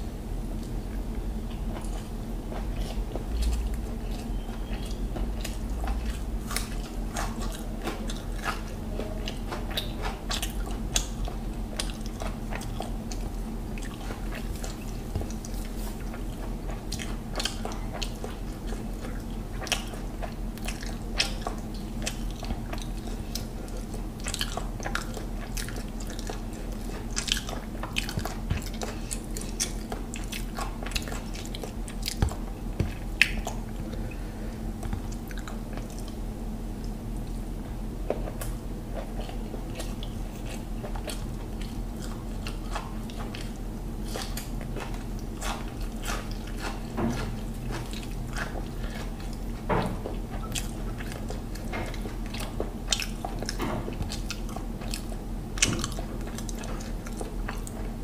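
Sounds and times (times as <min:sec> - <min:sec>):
low hum: 0:00.0 - 0:09.3
man chewing food: 0:00.0 - 0:58.0.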